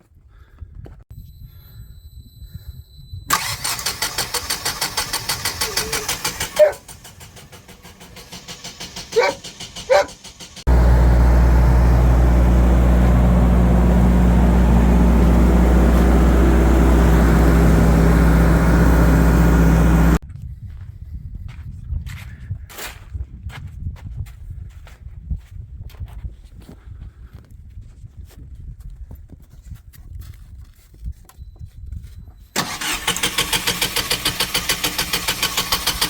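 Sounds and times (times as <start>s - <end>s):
generator engine cranking: 3.3s - 20.2s, 32.6s - 36.0s
generator engine running: 3.3s - 20.2s, 32.6s - 36.0s.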